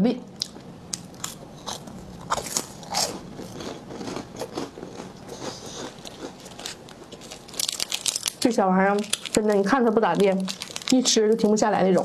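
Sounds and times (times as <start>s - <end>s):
chewing crunchy snack: 0.4s - 9.6s, 10.2s - 11.4s
plastic wrappers crinkling: 6.0s - 12.0s.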